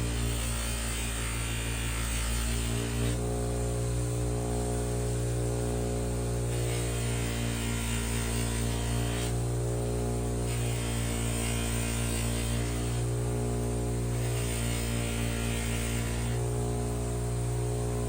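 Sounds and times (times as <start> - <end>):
power tool motor humming: 0.0 - 18.0.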